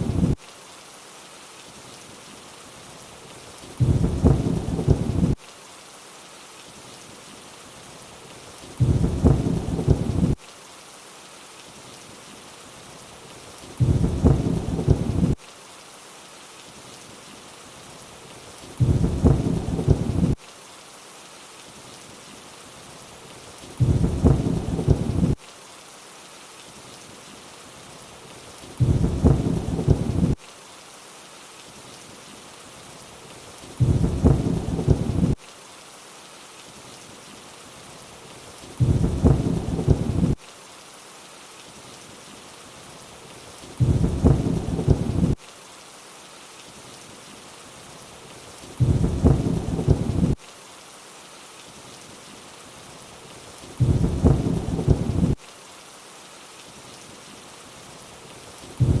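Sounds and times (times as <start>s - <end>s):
rain hiss: 0.0s - 59.0s
low thunder rumble: 3.8s - 5.4s, 8.8s - 10.4s, 13.8s - 15.4s, 18.8s - 20.4s, 23.8s - 25.4s, 28.8s - 30.4s, 33.8s - 35.4s, 38.8s - 40.4s, 43.8s - 45.4s, 48.8s - 50.4s, 53.8s - 55.4s, 58.8s - 59.0s.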